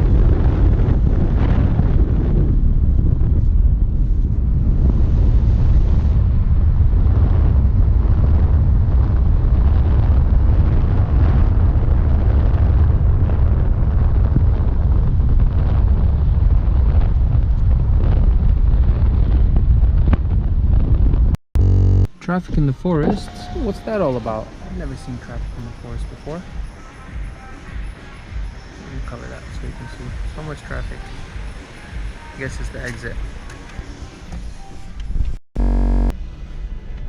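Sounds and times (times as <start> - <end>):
wind buffeting microphone: 0.0 - 21.4
loud steady low rumble: 0.0 - 26.2, 35.6 - 36.7.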